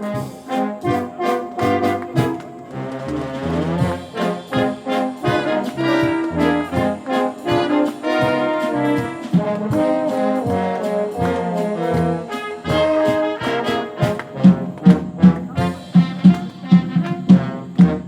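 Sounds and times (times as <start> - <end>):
loud regular beats: 0.0 - 18.0
wind band playing: 0.0 - 18.0.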